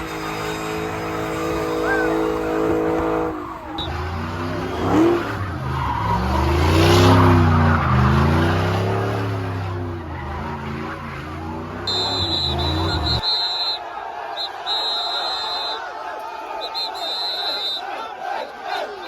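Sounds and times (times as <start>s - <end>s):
car engine revving: 0.0s - 13.2s
tires squealing and skidding: 0.0s - 15.8s.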